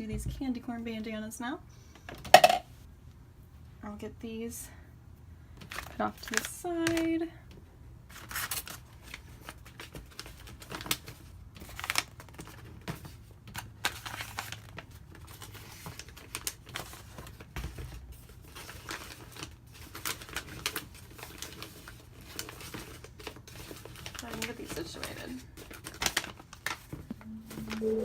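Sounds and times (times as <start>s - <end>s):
rustling and crinkling items: 5.5s - 27.9s.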